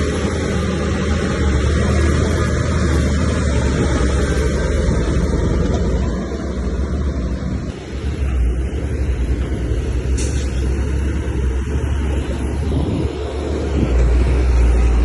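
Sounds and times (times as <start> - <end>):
diesel machinery rumbling: 0.0 - 15.0
brief hiss: 10.2 - 10.6.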